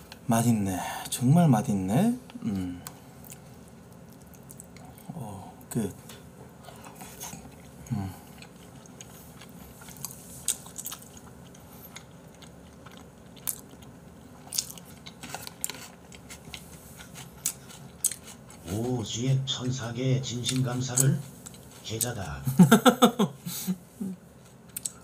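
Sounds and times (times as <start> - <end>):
person humming: 2.4 - 2.9, 7.9 - 8.2
person chewing wetly: 2.8 - 5.2, 6.6 - 19.2, 20.3 - 22.3, 24.4 - 25.0.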